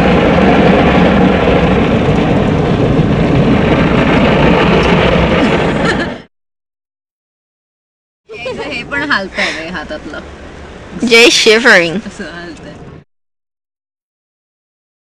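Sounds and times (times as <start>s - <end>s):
car wash water and machinery: 0.0s - 6.3s, 8.3s - 13.0s.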